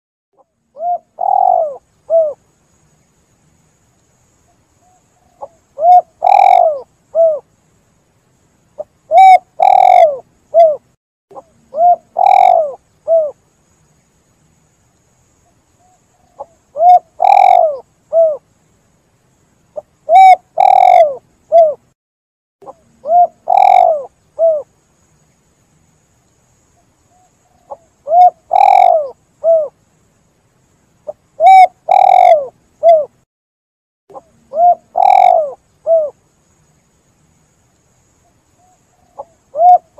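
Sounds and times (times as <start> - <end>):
dove cooing: 0.8 - 2.4, 4.8 - 7.5, 9.1 - 13.4, 15.8 - 18.4, 19.8 - 21.8, 22.6 - 24.7, 27.1 - 29.8, 31.1 - 33.2, 34.1 - 36.2, 38.6 - 39.9.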